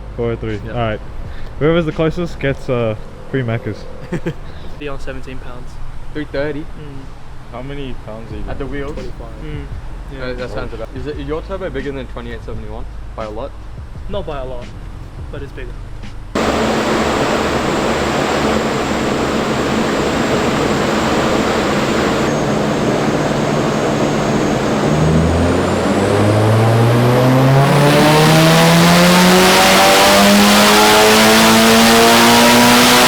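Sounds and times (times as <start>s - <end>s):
car engine revving on dyno: 16.4s - 33.0s.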